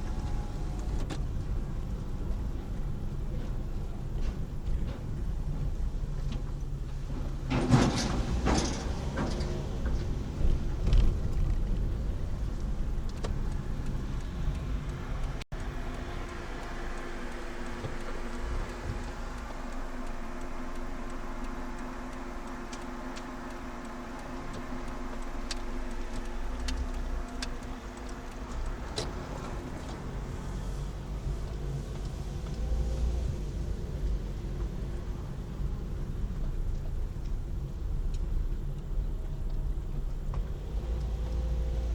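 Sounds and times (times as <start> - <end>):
car road and engine rumble: 0.0 - 41.9
passing vehicle rush: 7.5 - 36.7
hum with held tones: 15.6 - 29.9.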